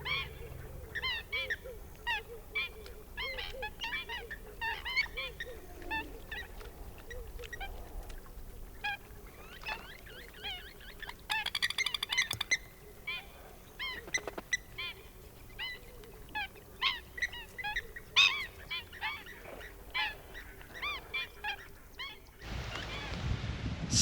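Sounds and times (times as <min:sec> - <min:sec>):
birds calling: 0:00.0 - 0:07.7.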